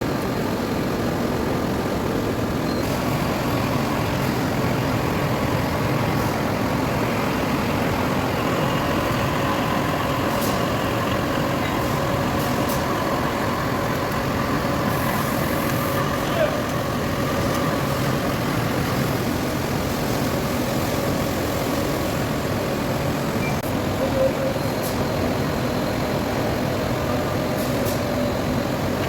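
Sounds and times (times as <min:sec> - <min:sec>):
metal lathe running: 0:02.8 - 0:27.5.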